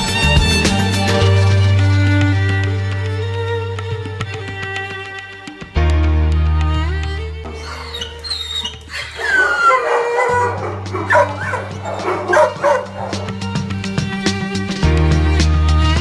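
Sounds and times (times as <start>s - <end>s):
background music: 0.0s - 16.0s
dogs barking and yelping: 7.5s - 13.6s.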